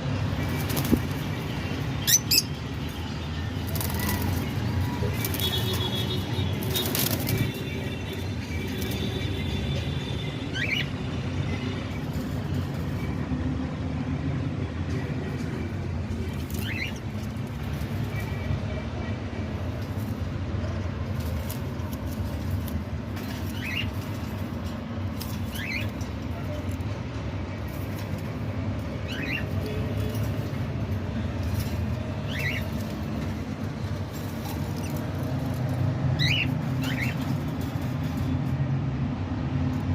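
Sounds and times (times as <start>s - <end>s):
small bird chirping: 2.0s - 2.6s.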